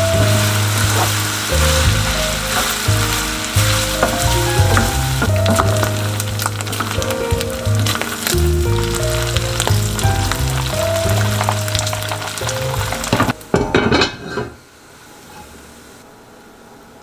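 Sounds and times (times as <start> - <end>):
background music with held notes: 0.0 - 13.5
meat sizzling in a frying pan: 0.0 - 13.7
clattering in a pan: 1.8 - 8.3, 11.1 - 14.6.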